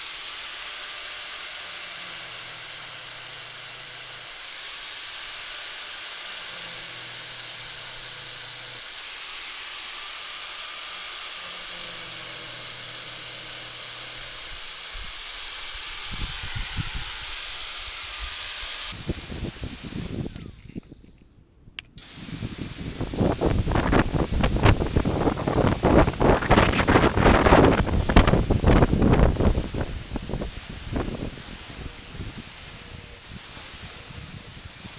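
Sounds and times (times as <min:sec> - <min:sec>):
angle grinder grinding metal: 0:00.0 - 0:34.9
wind buffeting microphone: 0:15.8 - 0:21.2, 0:22.0 - 0:34.9.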